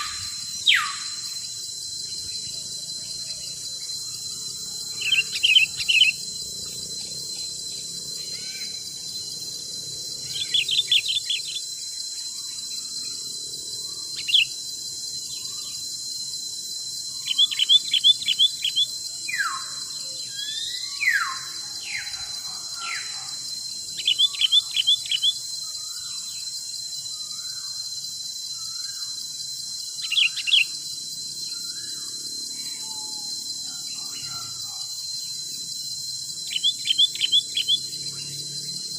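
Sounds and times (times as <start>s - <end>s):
falling bird whistles: 0.0s - 2.5s, 3.7s - 6.3s, 17.1s - 23.2s
insect drone: 0.0s - 38.9s.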